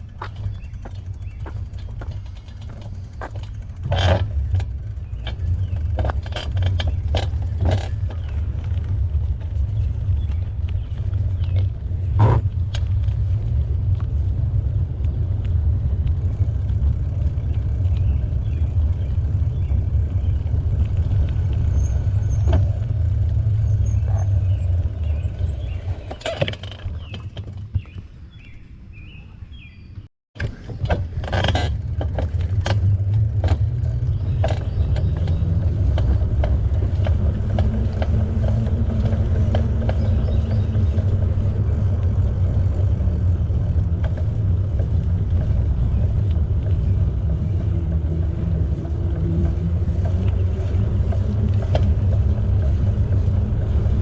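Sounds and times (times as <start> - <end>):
bicycle tyre noise: 0.0 - 28.7, 30.4 - 54.0
wind buffeting microphone: 30.6 - 54.0.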